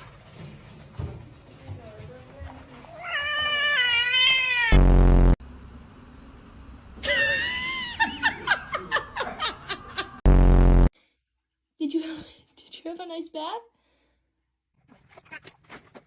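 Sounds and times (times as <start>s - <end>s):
cat yowling: 3.0s - 4.8s
loud low buzz: 4.7s - 6.9s, 10.2s - 10.9s.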